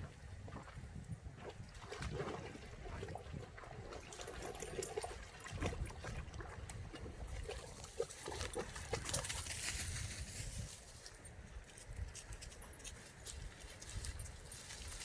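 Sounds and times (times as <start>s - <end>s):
dogs splashing in water: 0.0s - 9.6s.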